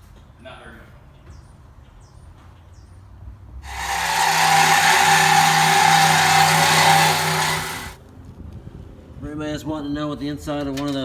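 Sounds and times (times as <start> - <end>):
power tool hissing and whining: 3.7 - 8.0.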